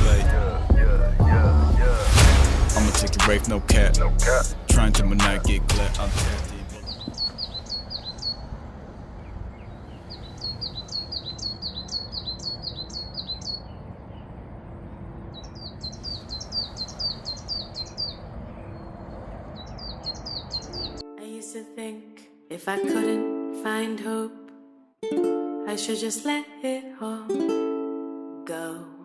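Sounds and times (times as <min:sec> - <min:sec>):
small songbird singing: 0:00.0 - 0:21.0.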